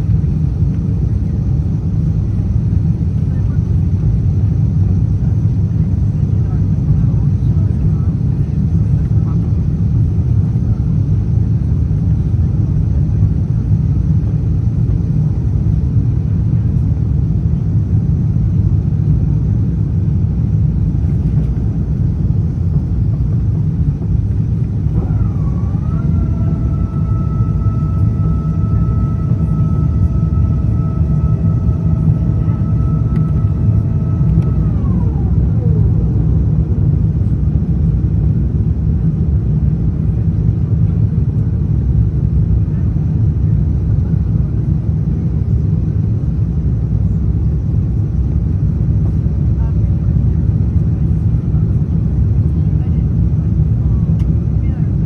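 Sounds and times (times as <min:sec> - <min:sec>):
aircraft cabin engine rumble: 0:00.0 - 0:55.0
mechanical whine: 0:19.8 - 0:39.0.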